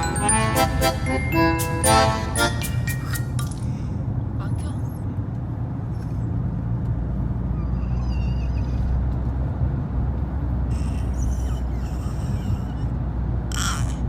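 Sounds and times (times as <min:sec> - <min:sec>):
baby squealing: 0:07.6 - 0:09.0, 0:10.7 - 0:14.0.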